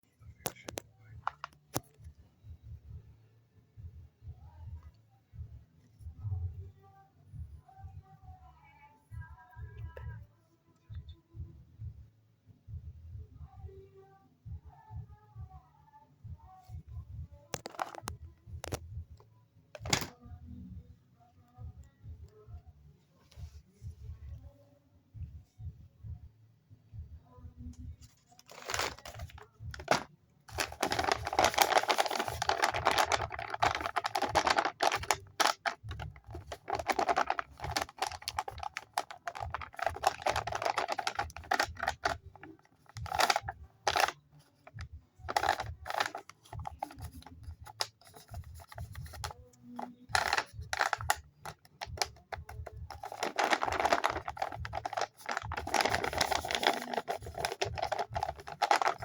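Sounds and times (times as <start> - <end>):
paper and tape crinkling: 0.4 - 1.8, 17.6 - 18.1, 28.0 - 59.0.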